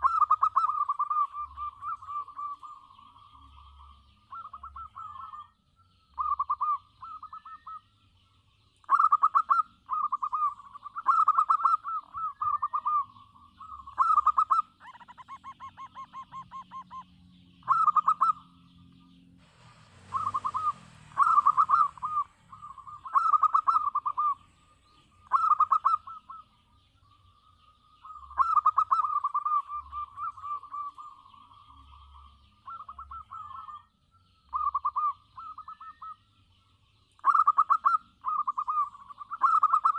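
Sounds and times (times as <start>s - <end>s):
dove cooing: 0.0s - 7.9s, 8.8s - 18.6s, 19.4s - 26.7s, 27.6s - 33.9s, 34.5s - 36.2s, 37.2s - 39.9s
small birds chirping faintly: 0.0s - 39.9s
rush of noise: 19.4s - 23.6s.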